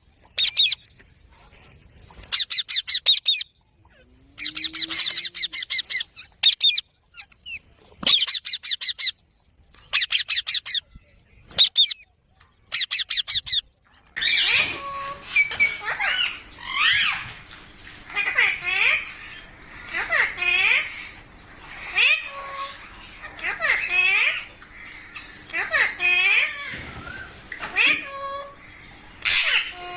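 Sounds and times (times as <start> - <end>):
parakeet chatter: 2.2 - 9.1, 11.5 - 29.9
parakeets screeching: 2.3 - 3.4, 4.4 - 6.8, 14.2 - 29.9.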